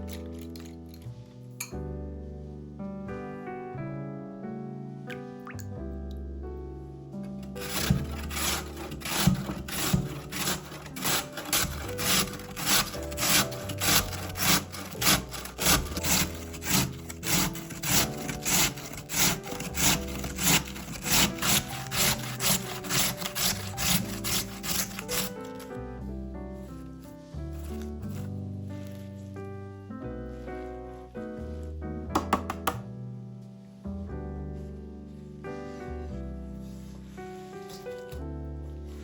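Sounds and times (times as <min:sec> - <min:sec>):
food grating on metal grater: 0:07.4 - 0:25.8, 0:27.6 - 0:28.3.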